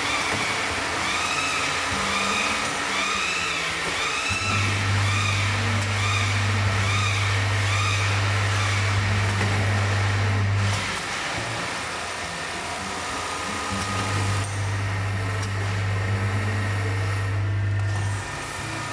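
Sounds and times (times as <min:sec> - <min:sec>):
machine squeal rising and falling: 0:00.0 - 0:11.7
electrical hum: 0:00.0 - 0:18.9.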